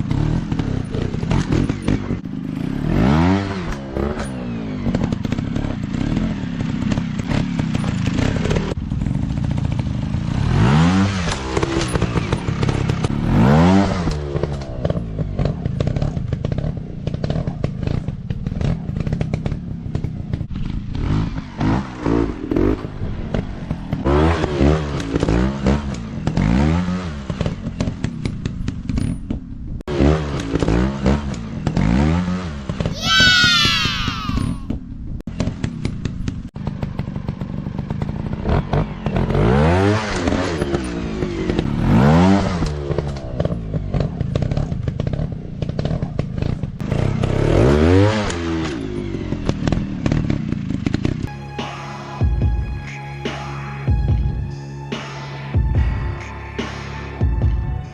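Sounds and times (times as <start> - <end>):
dirt bike engines revving: 0.0 - 28.0, 29.9 - 34.7.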